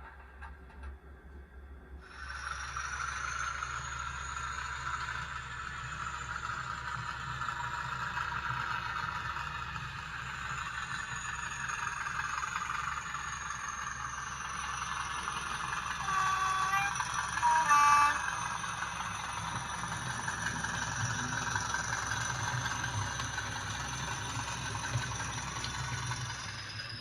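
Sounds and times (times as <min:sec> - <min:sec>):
model locomotive engine sound: 0:00.0 - 0:27.0.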